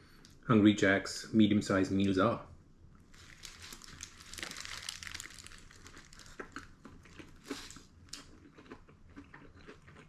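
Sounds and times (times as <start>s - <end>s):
paper packaging rustling: 3.1s - 6.5s
chewing and crunching food: 3.2s - 10.0s.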